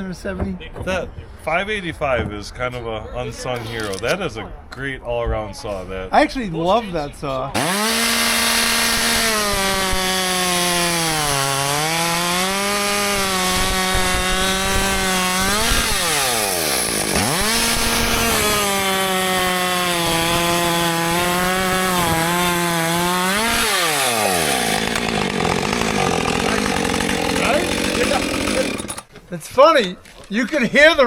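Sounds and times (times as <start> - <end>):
chainsaw cutting wood: 7.6 - 29.1
chainsaw engine revving: 7.6 - 29.1.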